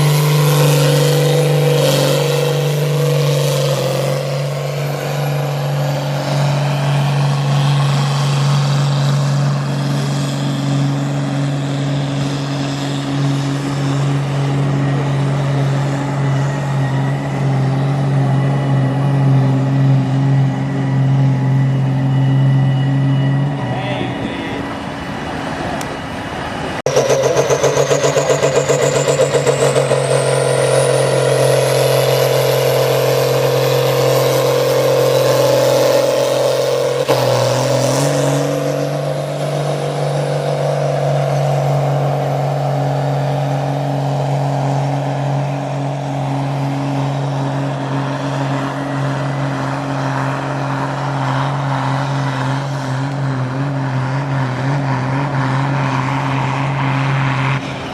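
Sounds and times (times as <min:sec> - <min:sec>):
high whine climbing in pitch: 0:00.0 - 0:57.9
tractor engine running hard: 0:00.0 - 0:57.9.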